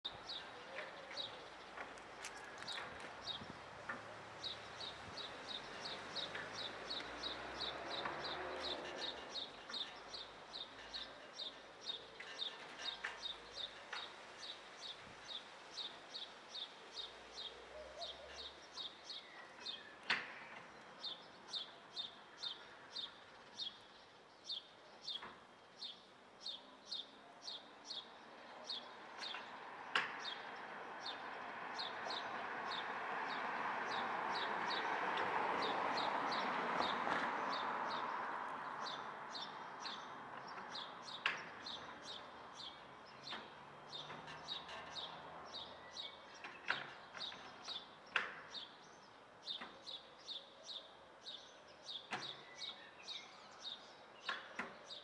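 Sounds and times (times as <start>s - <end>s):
bird chirping: 35.6s - 55.0s.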